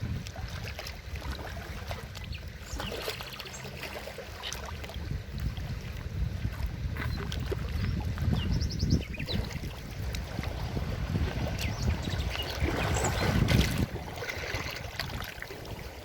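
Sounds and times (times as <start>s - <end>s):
river water rushing: 9.3s - 16.0s.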